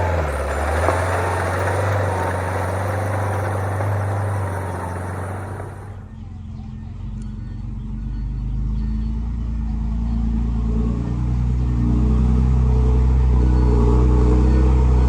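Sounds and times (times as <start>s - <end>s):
diesel engine rumbling: 0.0s - 10.6s.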